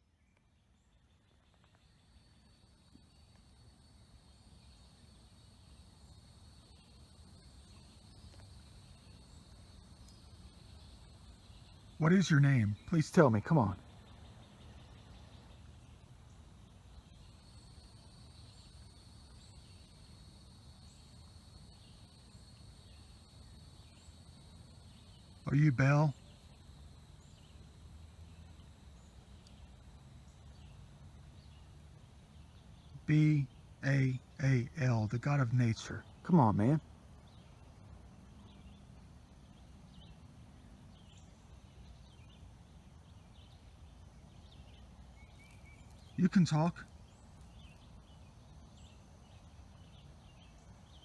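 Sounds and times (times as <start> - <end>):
faint bird chirps: 0.0 - 51.0
high-pitched insect trill: 17.1 - 25.4.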